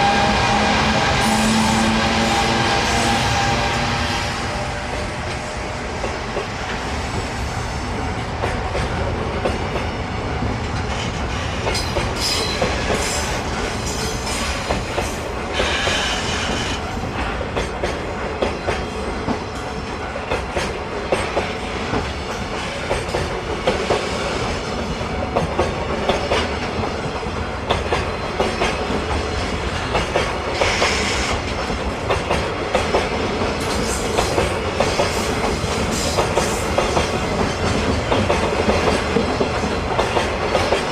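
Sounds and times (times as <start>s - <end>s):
train wheels clacking over rail joints: 10.7s - 40.9s.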